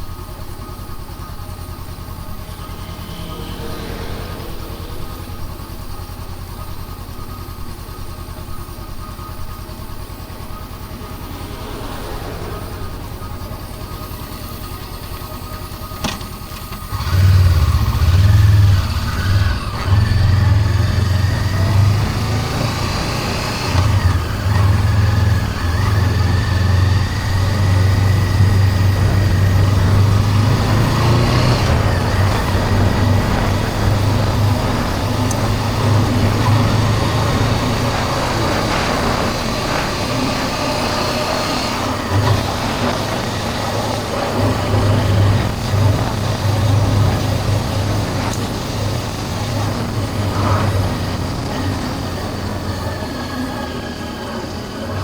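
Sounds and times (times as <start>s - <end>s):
motorcycle engine running: 0.0s - 55.0s
wind rumble on microphone: 17.4s - 53.6s.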